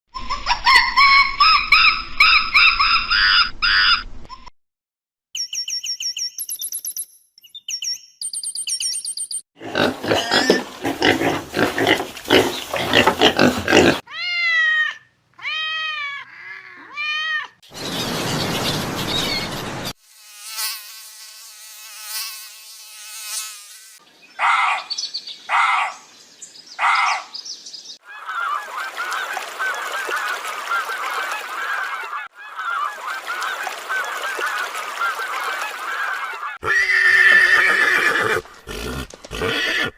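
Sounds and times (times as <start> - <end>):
animal calls: 28.0 - 39.9.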